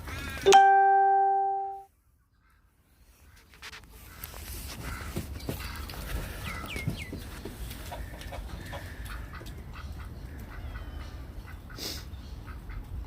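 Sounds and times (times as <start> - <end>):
chickens clucking: 3.5 - 13.0.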